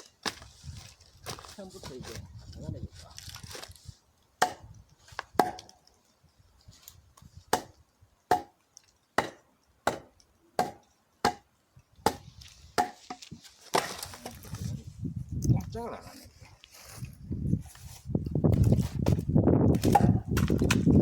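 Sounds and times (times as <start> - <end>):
axe chopping log: 4.4 - 4.8, 5.4 - 5.8, 7.5 - 8.6, 9.2 - 14.0, 19.7 - 21.0.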